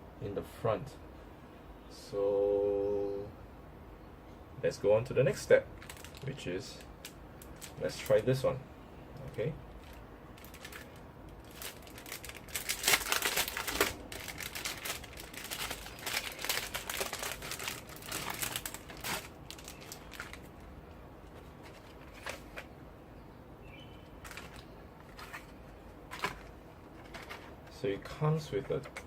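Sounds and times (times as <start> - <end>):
plastic packaging crinkling: 5.8 - 8.3, 9.2 - 22.7, 24.2 - 27.8.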